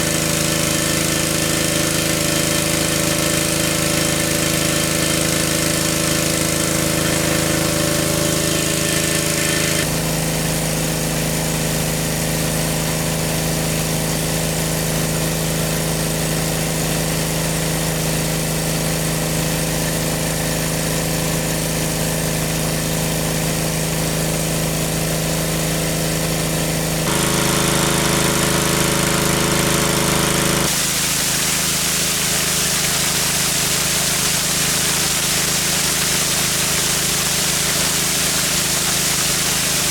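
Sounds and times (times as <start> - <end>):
engine running: 0.0 - 10.2, 26.8 - 31.4.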